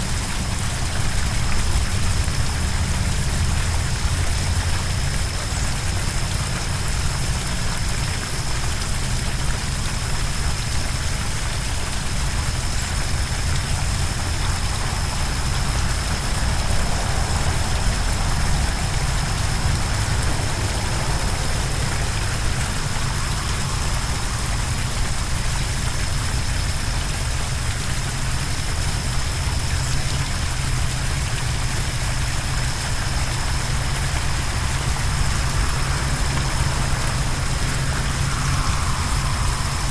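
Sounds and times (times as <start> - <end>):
waterfall roaring: 0.0 - 39.9
thin high tone: 18.4 - 26.8, 32.4 - 39.9.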